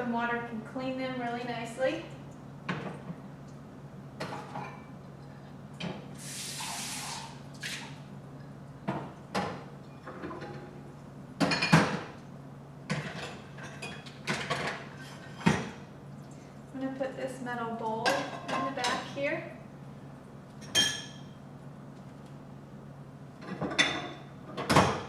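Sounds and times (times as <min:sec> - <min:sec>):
dishes clinking in a rack: 0:04.2 - 0:04.9, 0:11.4 - 0:12.1, 0:20.6 - 0:21.4, 0:23.4 - 0:25.0
tap water running: 0:06.2 - 0:08.0.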